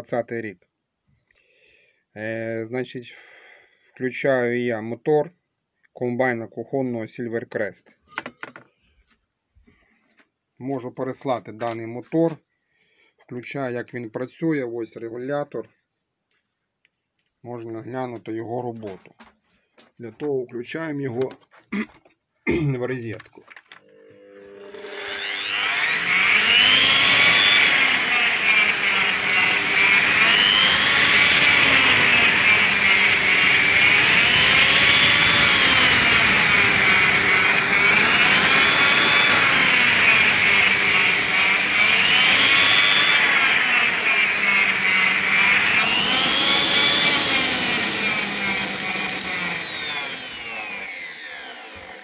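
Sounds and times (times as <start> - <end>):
food processor motor whine: 23.6 - 52.0.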